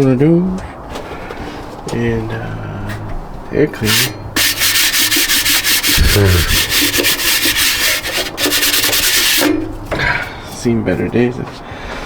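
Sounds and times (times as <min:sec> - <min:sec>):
rapid scratchy scraping: 0:03.8 - 0:09.7.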